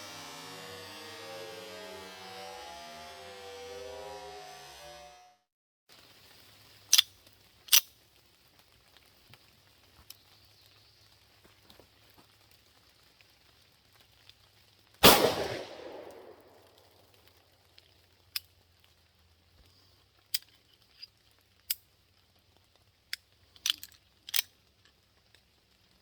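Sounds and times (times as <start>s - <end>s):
pistol shot with echo: 15.0s - 16.7s.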